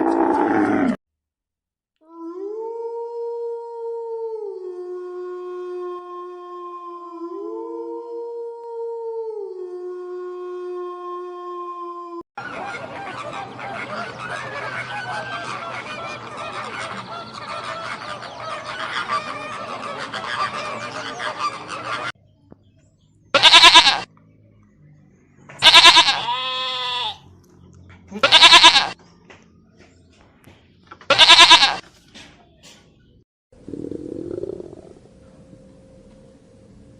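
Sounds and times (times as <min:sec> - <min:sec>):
flock of fowl calling: 0:12.4 - 0:22.2
goat bleating: 0:23.4 - 0:24.1, 0:25.6 - 0:27.2, 0:28.1 - 0:29.0, 0:31.1 - 0:31.8.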